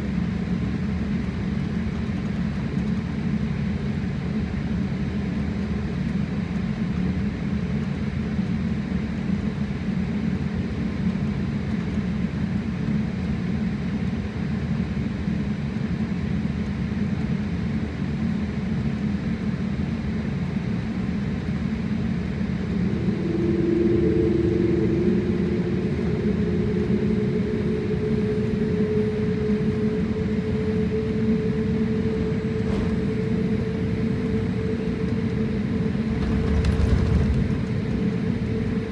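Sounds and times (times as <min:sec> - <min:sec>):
jet engine rumble in cabin: 0:00.0 - 0:38.9
steady hum: 0:21.6 - 0:38.9.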